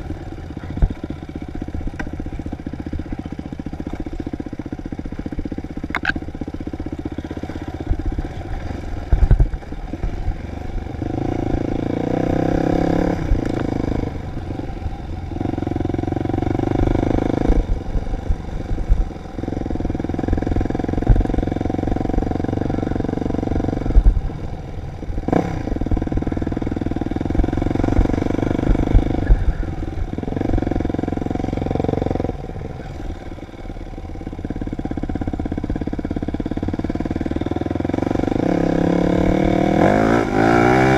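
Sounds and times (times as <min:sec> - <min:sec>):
dirt bike engine revving: 0:10.0 - 0:24.4, 0:34.5 - 0:40.9.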